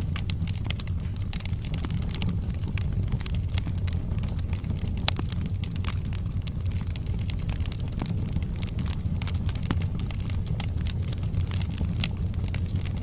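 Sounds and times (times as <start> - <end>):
fire crackling and popping: 0.0 - 13.0
fire low rumble: 0.0 - 13.0.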